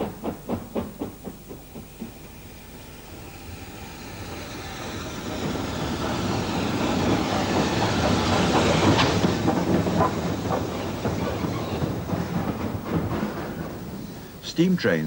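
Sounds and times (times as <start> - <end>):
steam train approaching: 0.0 - 15.0
wheels clattering over rail joints: 4.1 - 15.0.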